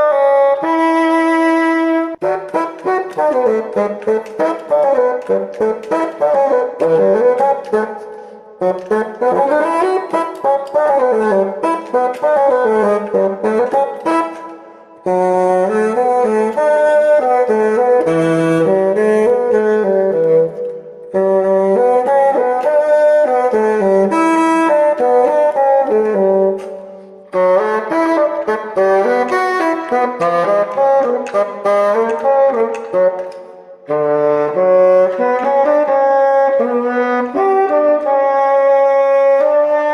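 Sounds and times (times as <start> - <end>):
solo bassoon melody: 0.0 - 39.9.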